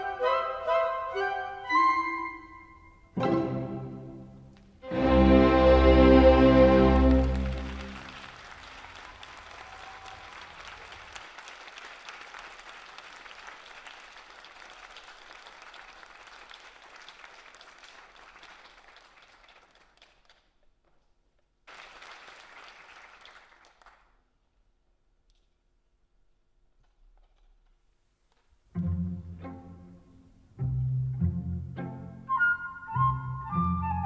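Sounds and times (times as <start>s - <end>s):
audience applauding: 4.9s - 20.5s, 21.7s - 24.2s.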